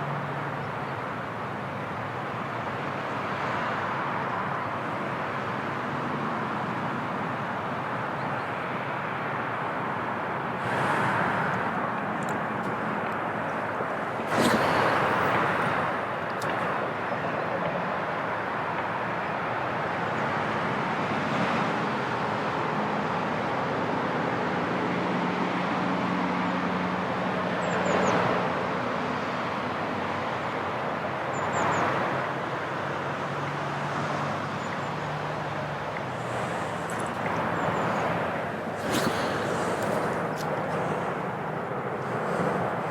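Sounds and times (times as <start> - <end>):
distant road traffic rumble: 0.0 - 42.9
low engine hum: 25.3 - 42.9.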